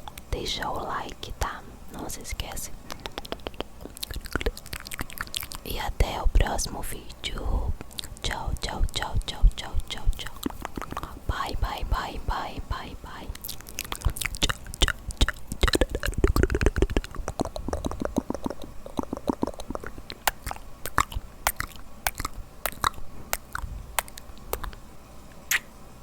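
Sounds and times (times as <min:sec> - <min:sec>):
wet mouth clicks and smacks: 0:02.4 - 0:06.5, 0:07.8 - 0:11.5, 0:13.1 - 0:24.8, 0:25.4 - 0:25.7.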